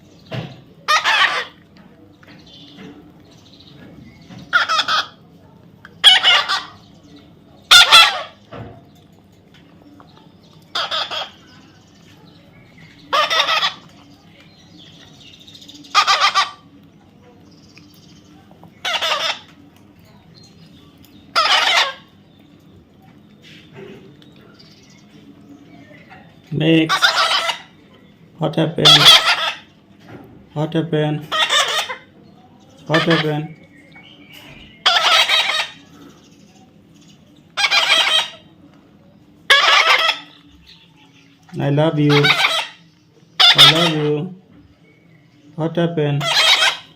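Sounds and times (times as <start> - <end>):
parrot squawking: 0.8 - 1.6, 4.5 - 5.2, 6.0 - 6.9, 7.7 - 8.4, 10.7 - 11.5, 13.1 - 14.0, 15.9 - 16.7, 18.8 - 19.6, 21.3 - 22.2, 26.8 - 27.8, 28.7 - 29.8, 31.2 - 32.1, 32.9 - 33.5, 34.8 - 35.8, 37.5 - 38.6, 39.5 - 40.4, 41.9 - 44.4, 46.2 - 46.9.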